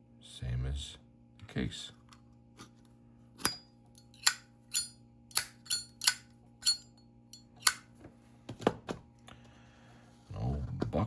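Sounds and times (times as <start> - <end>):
metal lighters clicking: 3.4 - 7.8.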